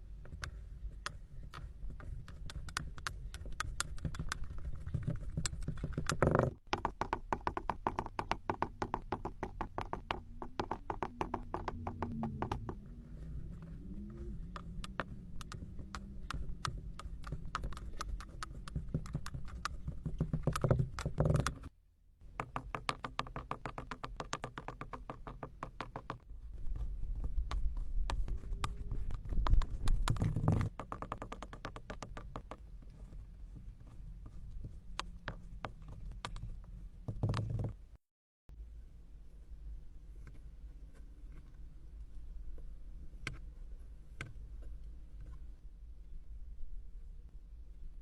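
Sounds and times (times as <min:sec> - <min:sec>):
sand ticks and soft taps: 0:24.0 - 0:37.4.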